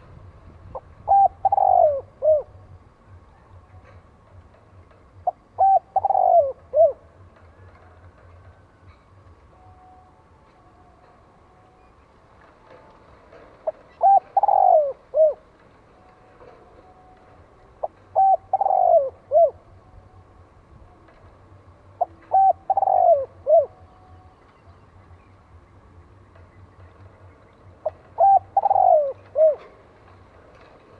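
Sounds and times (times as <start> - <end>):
dove cooing: 0.7 - 4.0, 4.8 - 9.0, 13.4 - 15.6, 17.7 - 19.8, 21.9 - 24.1, 27.8 - 30.1.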